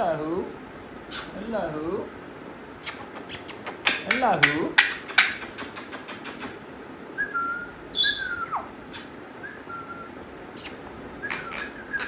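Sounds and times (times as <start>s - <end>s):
parrot clicks: 2.8s - 6.6s
parrot whistling: 7.2s - 12.0s.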